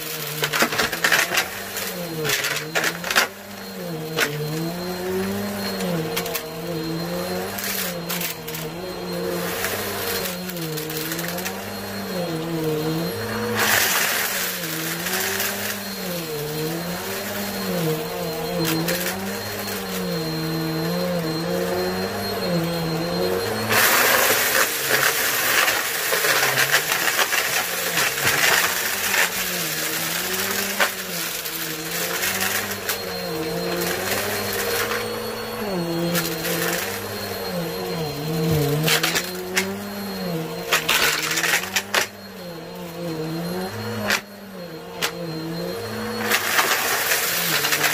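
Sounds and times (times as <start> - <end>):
debris rattling up vacuum nozzle: 0.0 - 6.5, 13.3 - 20.1, 23.5 - 35.2, 46.2 - 47.9
vacuum cleaner motor running: 0.0 - 47.9.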